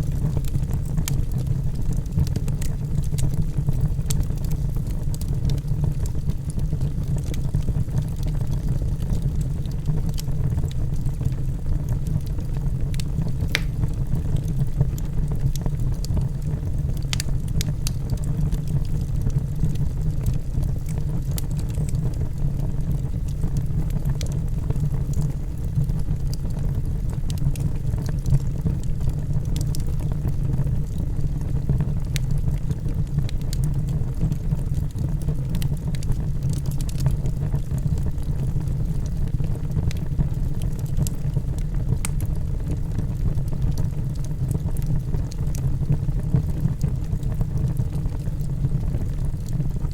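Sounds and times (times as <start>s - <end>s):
log fire rumbling: 0.0s - 49.9s
logs crackling and popping: 0.0s - 49.9s.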